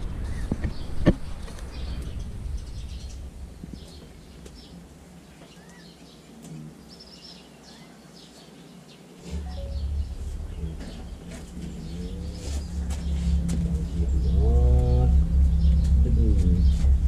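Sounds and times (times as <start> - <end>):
low rumble: 0.0 - 5.4, 9.3 - 17.0.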